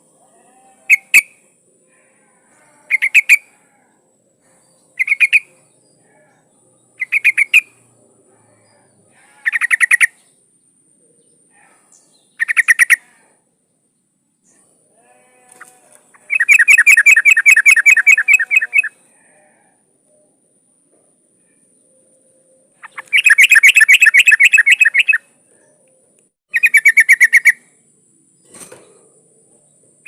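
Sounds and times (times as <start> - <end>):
bird chattering calls: 2.9 - 3.4, 5.0 - 5.6, 7.0 - 7.8, 9.3 - 10.2, 12.4 - 13.0, 16.1 - 18.9, 22.8 - 25.2, 26.5 - 27.7.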